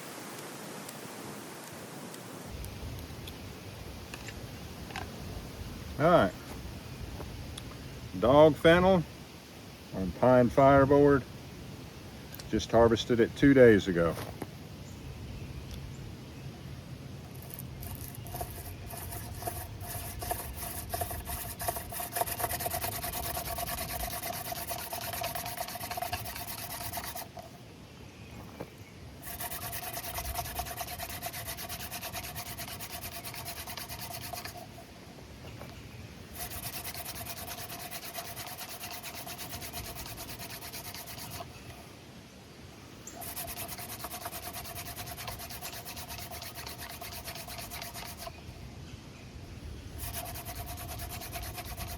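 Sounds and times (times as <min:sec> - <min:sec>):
hand drill spindle rubbing wood: 0:17.3 - 0:27.5, 0:29.2 - 0:34.9, 0:36.3 - 0:41.5, 0:43.1 - 0:48.3, 0:50.0 - 0:51.9.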